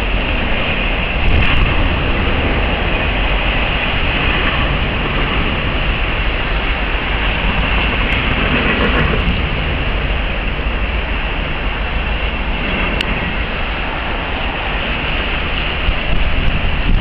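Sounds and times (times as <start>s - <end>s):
freight train steel wheels on rail: 0.0s - 17.0s.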